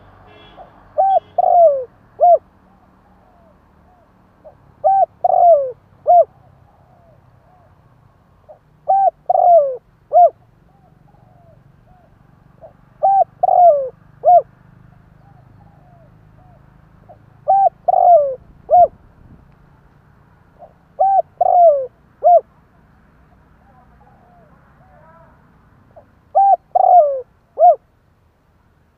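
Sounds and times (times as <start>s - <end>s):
dove cooing: 1.0s - 7.8s, 8.5s - 19.0s, 20.6s - 22.5s, 23.6s - 25.3s, 26.0s - 27.8s.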